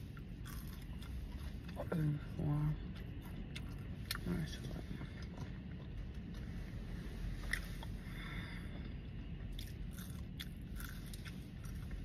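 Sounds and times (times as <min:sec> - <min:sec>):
person chewing food: 0:00.1 - 0:01.9, 0:02.8 - 0:04.3, 0:04.9 - 0:06.6, 0:07.3 - 0:12.0.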